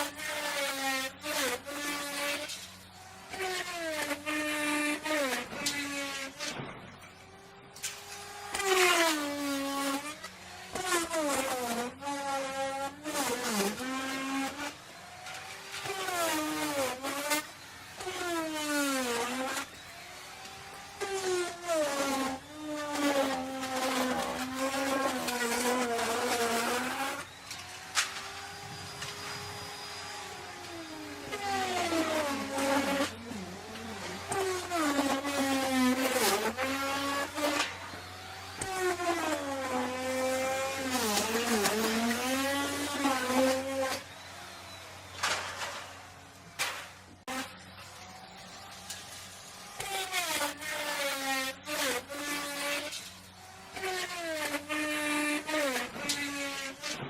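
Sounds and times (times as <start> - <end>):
electric router cutting wood: 0.0 - 57.0.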